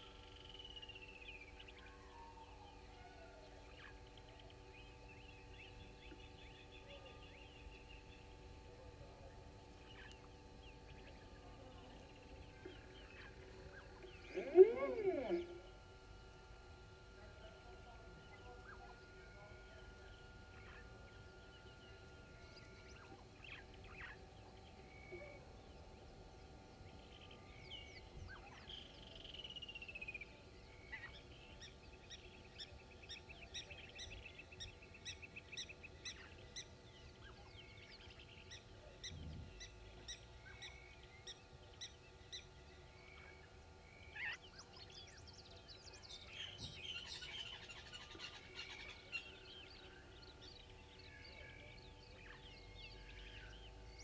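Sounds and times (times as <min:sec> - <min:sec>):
faint steady hum: 0:00.0 - 0:54.0
wild birds calling and chirping: 0:00.0 - 0:54.0
bird trill: 0:12.7 - 0:16.0.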